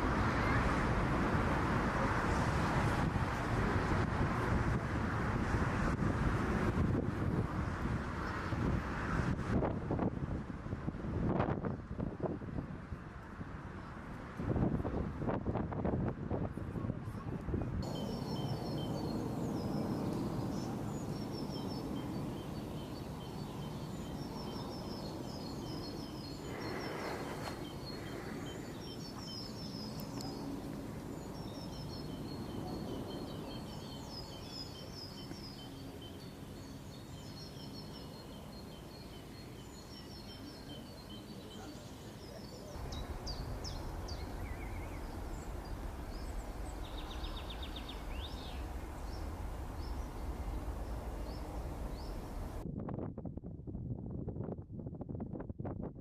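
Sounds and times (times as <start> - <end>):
small birds chirping: 17.8 - 52.6
low outdoor rumble: 42.6 - 55.6.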